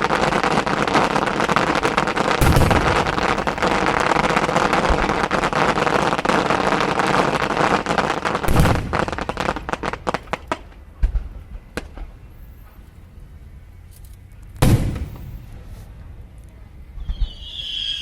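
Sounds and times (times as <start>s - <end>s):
fireworks crackling and banging: 0.0s - 13.0s, 14.4s - 18.0s
deep firework thud: 2.4s - 3.5s, 14.6s - 15.8s
heavy firework boom: 2.4s - 3.9s, 14.6s - 15.7s.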